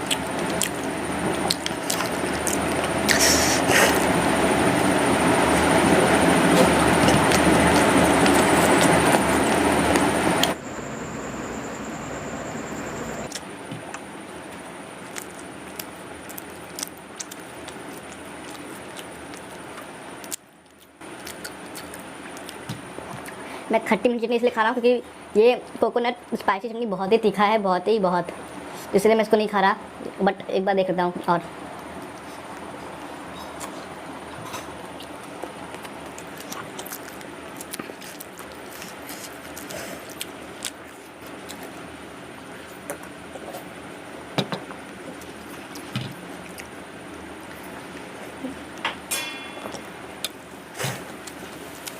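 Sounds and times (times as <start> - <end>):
person chewing crunchy food: 0.0 - 4.2, 5.3 - 10.6, 15.0 - 23.4, 32.0 - 41.9, 44.9 - 46.8.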